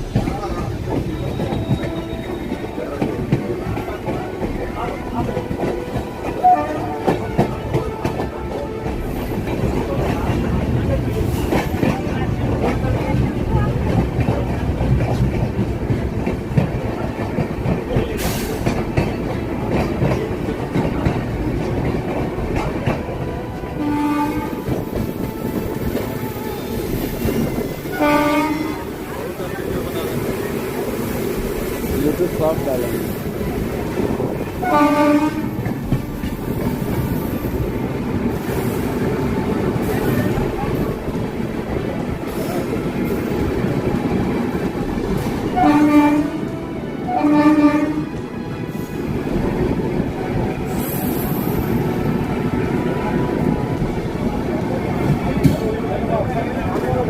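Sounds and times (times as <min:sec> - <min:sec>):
train rumbling on rails: 0:00.0 - 0:57.0
train horn: 0:01.2 - 0:02.8, 0:04.0 - 0:09.6, 0:23.2 - 0:29.0, 0:34.6 - 0:35.7, 0:45.5 - 0:48.2.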